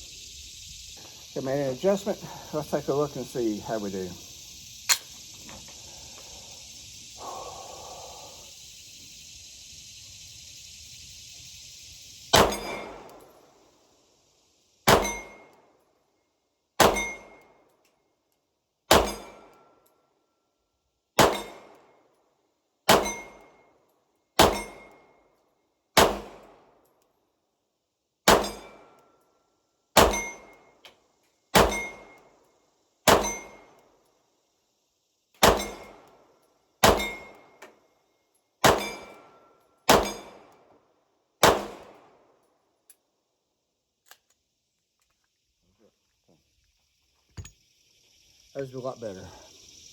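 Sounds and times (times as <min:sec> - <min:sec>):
steel target plate clanging: 0:12.4 - 0:13.0, 0:30.0 - 0:30.5, 0:31.6 - 0:32.2, 0:33.1 - 0:33.7, 0:40.0 - 0:40.4
gunshots: 0:12.4 - 0:13.2, 0:14.9 - 0:15.3, 0:16.8 - 0:17.2, 0:18.9 - 0:19.5, 0:21.2 - 0:21.7, 0:22.9 - 0:23.3, 0:24.4 - 0:24.8, 0:26.0 - 0:26.4, 0:28.3 - 0:28.8, 0:30.0 - 0:30.3, 0:31.6 - 0:32.0, 0:33.1 - 0:33.5, 0:35.4 - 0:36.0, 0:36.8 - 0:37.3, 0:38.6 - 0:39.1, 0:39.9 - 0:40.5, 0:41.4 - 0:42.0.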